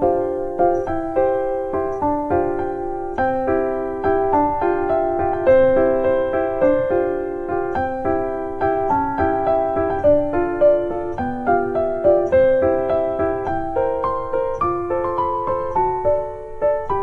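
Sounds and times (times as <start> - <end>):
gentle piano notes: 0.0 - 17.0.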